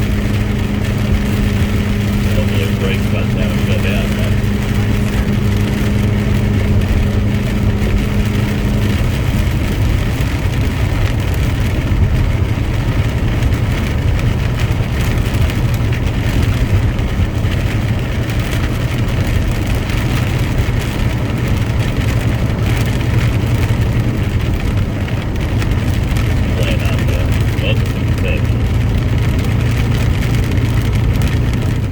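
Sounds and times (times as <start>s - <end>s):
higher hum: 0.0s - 7.5s, 26.3s - 29.0s
truck engine drone: 0.0s - 31.9s.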